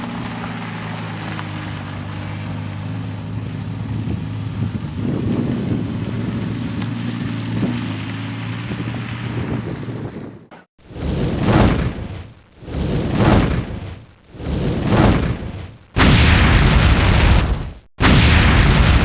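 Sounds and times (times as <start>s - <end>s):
sports car engine idling: 0.0s - 7.5s.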